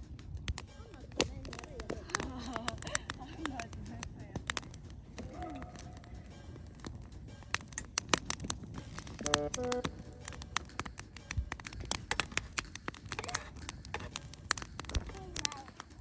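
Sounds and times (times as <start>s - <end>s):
campfire crackling and popping: 0.0s - 16.0s
low hiss: 6.0s - 16.0s
two-note pitched call: 9.2s - 10.2s.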